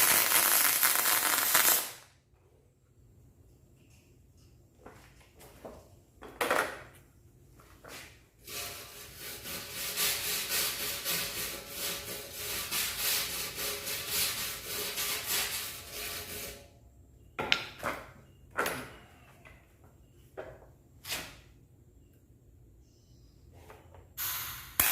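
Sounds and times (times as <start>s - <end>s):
scraping on metal tank: 8.4s - 16.6s.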